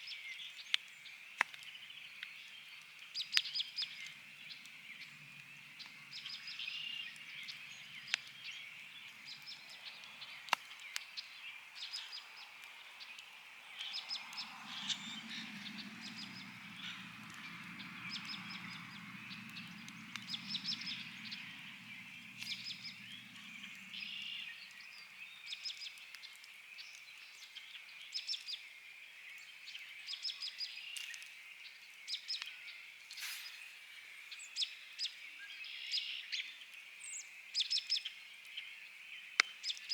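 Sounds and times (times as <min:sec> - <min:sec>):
songbirds chirping: 0:00.0 - 0:39.9
campfire crackling and popping: 0:00.6 - 0:27.5
low distant rumble: 0:14.1 - 0:24.2.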